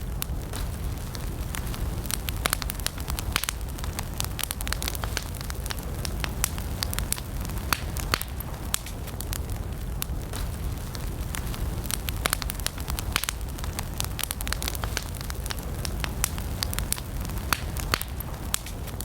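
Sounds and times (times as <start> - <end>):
campfire flames rumbling: 0.0 - 19.0
wood crackling and popping: 0.0 - 19.0.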